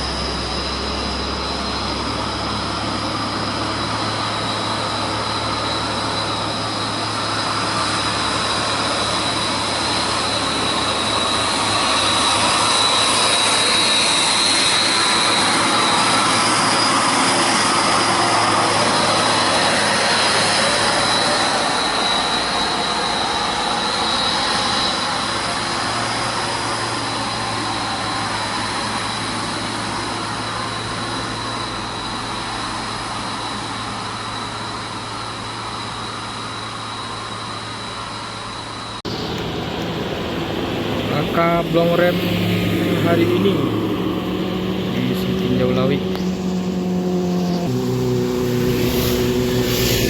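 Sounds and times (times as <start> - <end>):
vehicle engine humming and whining: 0.0 - 50.0.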